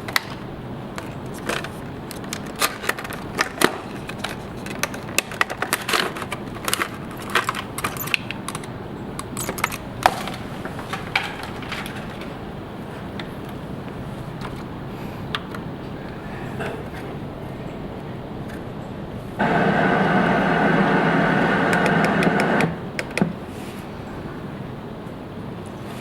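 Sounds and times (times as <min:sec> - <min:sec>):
steady background hiss: 0:09.9 - 0:26.0.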